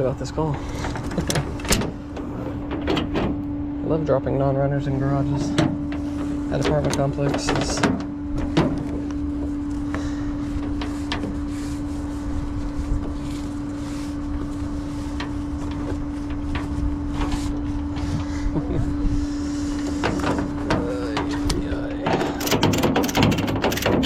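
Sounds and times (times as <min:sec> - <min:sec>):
scattered clicks: 0:21.4 - 0:24.0.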